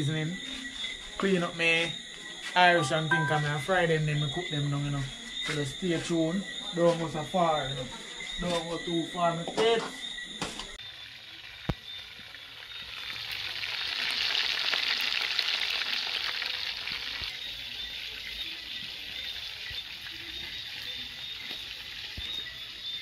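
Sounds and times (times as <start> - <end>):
squid sizzling in a pot: 10.8 - 23.0.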